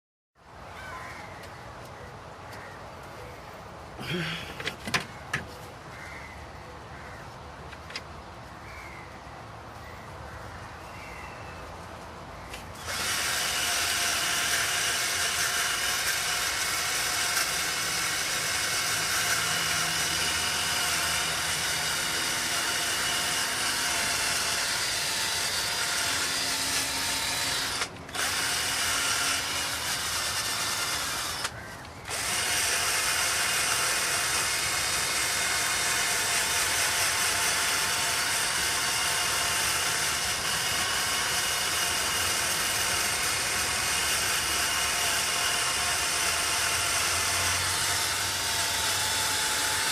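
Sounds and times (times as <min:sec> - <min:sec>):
power drill scouring metal: 0:12.8 - 0:49.9.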